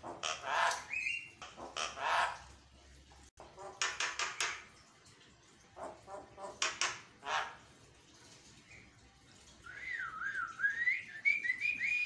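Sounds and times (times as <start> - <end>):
myna calling in harsh squawks: 0.0 - 2.4.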